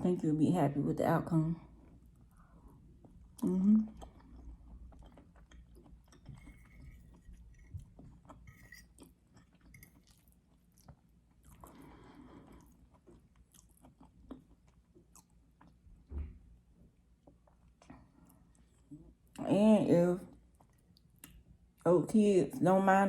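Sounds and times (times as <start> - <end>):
person chewing food: 1.7 - 16.1, 17.0 - 19.4, 20.4 - 21.8.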